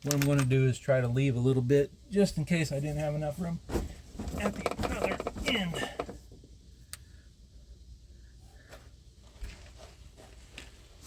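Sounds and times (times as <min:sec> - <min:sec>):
tool handling noises: 0:00.0 - 0:00.7, 0:02.9 - 0:06.4.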